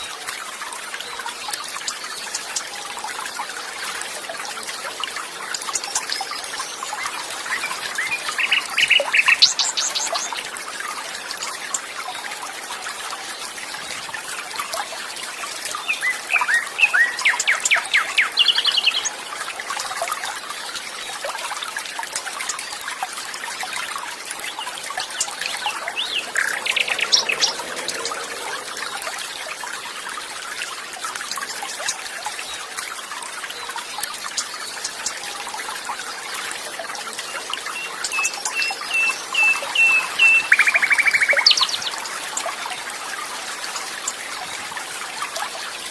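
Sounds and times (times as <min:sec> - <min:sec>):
water trickling: 0:00.0 - 0:45.9
songbirds chirping: 0:03.7 - 0:10.6, 0:21.8 - 0:30.9, 0:31.5 - 0:44.7.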